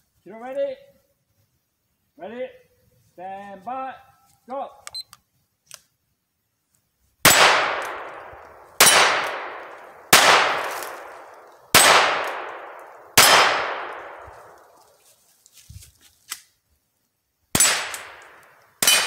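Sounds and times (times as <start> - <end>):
gunshots with ringing decay: 7.2 - 14.8, 17.5 - 19.0.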